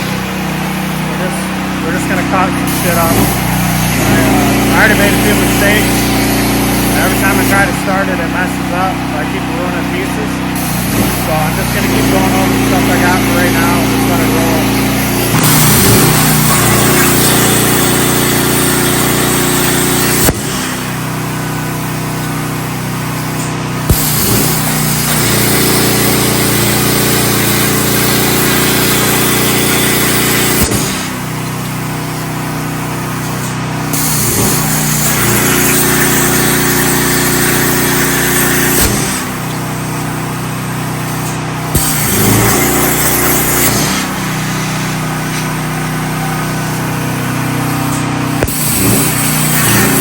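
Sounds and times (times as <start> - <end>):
plasma cutter arc hissing: 0.0 - 9.1, 9.8 - 50.0
generator engine humming: 0.0 - 50.0
arc popping: 10.6 - 50.0.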